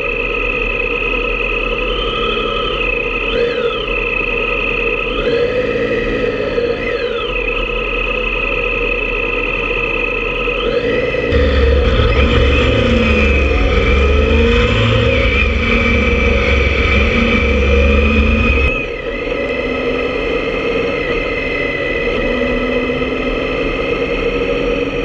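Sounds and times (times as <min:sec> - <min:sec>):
motorcycle engine rumbling: 0:07.3 - 0:20.3.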